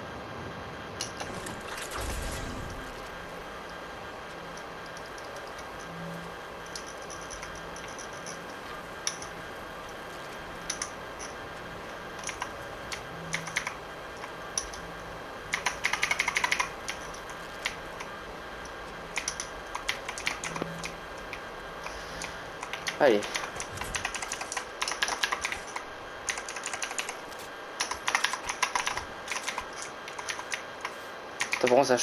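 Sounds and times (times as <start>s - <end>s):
computer keyboard keys clacking: 10.6s - 11.4s, 12.2s - 14.8s, 15.5s - 21.4s, 22.2s - 31.9s.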